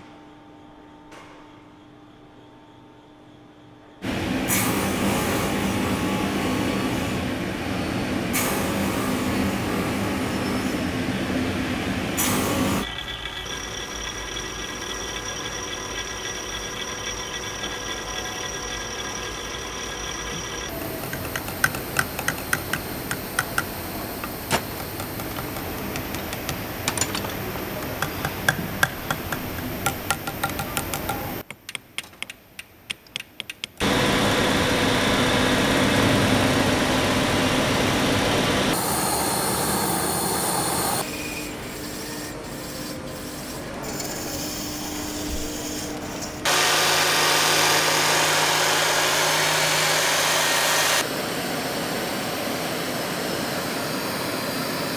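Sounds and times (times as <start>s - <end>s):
grinding machine noise: 12.8s - 31.4s, 46.4s - 51.2s.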